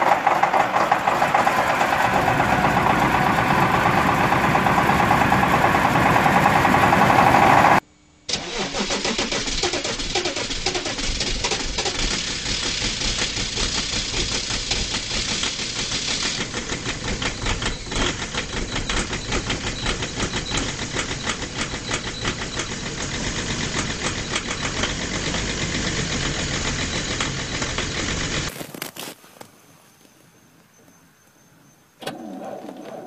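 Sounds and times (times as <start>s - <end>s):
diesel engine idling with knocking: 0.0s - 7.8s, 11.1s - 28.5s.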